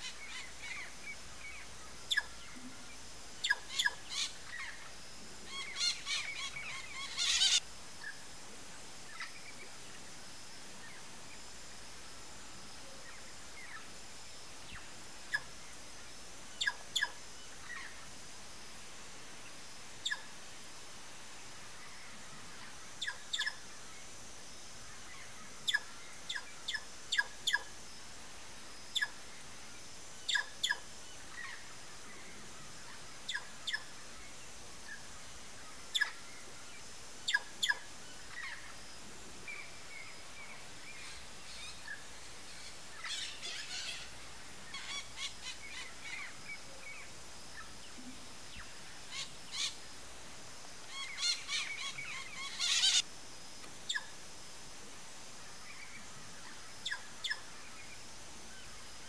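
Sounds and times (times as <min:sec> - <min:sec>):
birds twittering: 0:00.0 - 0:02.6, 0:05.5 - 0:08.2, 0:50.9 - 0:53.0
wild bird call notes: 0:00.0 - 0:02.6, 0:03.4 - 0:04.9, 0:05.5 - 0:08.2, 0:37.3 - 0:38.7, 0:40.9 - 0:47.0, 0:50.8 - 0:53.0, 0:55.7 - 0:57.6.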